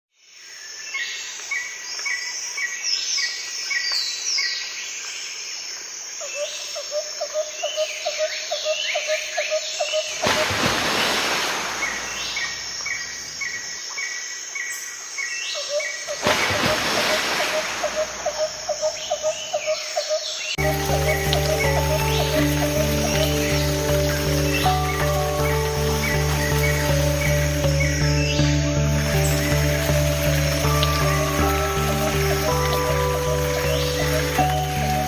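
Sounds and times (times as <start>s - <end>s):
birds chirping and trilling: 6.3s - 35.0s
waterfall rushing: 10.2s - 13.1s, 16.2s - 19.2s, 20.6s - 35.0s
high insect drone: 20.6s - 35.0s.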